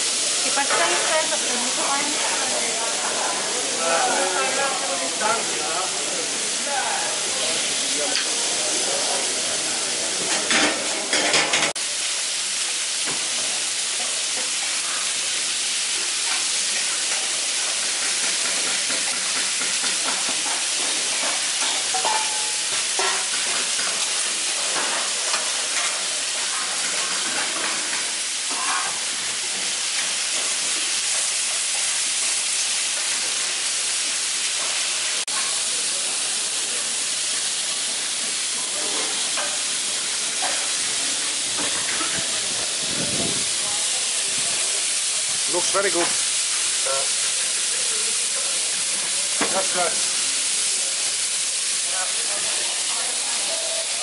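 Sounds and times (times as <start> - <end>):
chicken sizzling on griddle: 0.0 - 54.0
metal tongs and spatula scraping: 21.0 - 23.9, 26.8 - 29.0.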